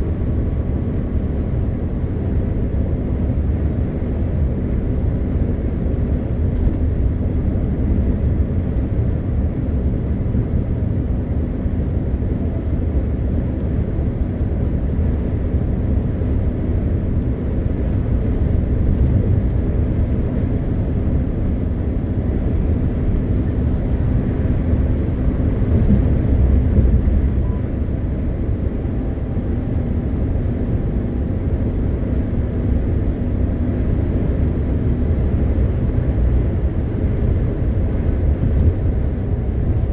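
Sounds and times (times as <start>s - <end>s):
road and tyre noise: 0.0s - 39.9s
truck diesel engine droning: 12.4s - 39.9s.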